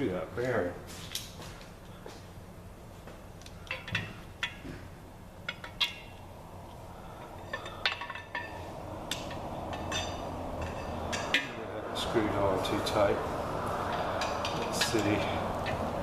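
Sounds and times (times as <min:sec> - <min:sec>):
metal tool clinking on bearings: 0:03.5 - 0:04.6, 0:07.2 - 0:11.6, 0:13.9 - 0:15.9.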